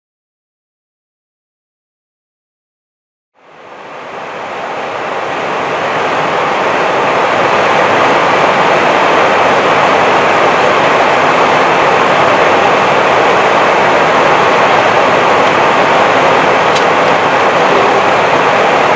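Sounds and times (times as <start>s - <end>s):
aircraft cockpit rushing noise: 4.1s - 18.9s.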